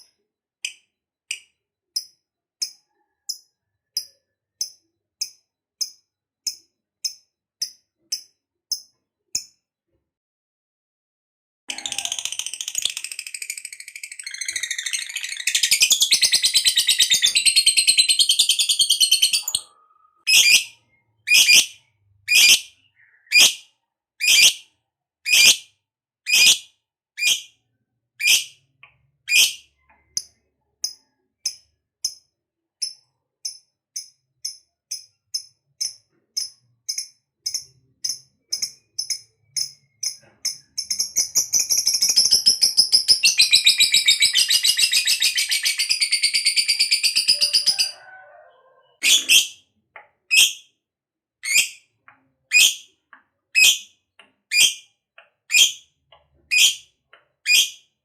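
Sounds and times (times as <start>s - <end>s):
lovebird chattering trill: 11.7s - 20.7s, 21.3s - 21.7s, 22.3s - 23.6s, 24.2s - 24.6s, 29.3s - 29.6s, 35.4s - 48.0s, 53.6s - 53.9s, 55.5s - 55.8s, 56.5s - 56.8s, 57.5s - 57.8s
sharp bird chirps: 11.7s - 25.7s, 26.3s - 27.6s, 29.3s - 32.2s, 32.8s - 48.2s, 48.8s - 49.6s, 51.4s - 53.0s, 53.6s - 54.9s, 55.5s - 55.9s, 56.5s - 58.0s.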